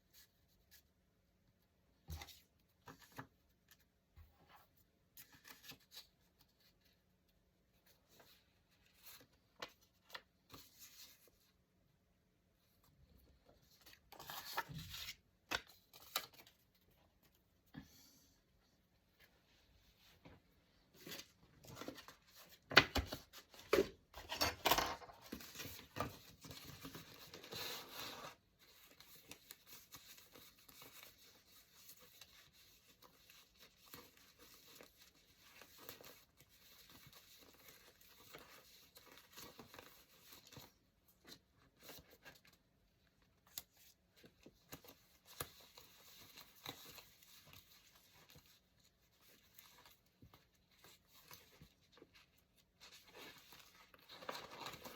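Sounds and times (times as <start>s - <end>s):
paper rustling: 19.9s - 54.9s.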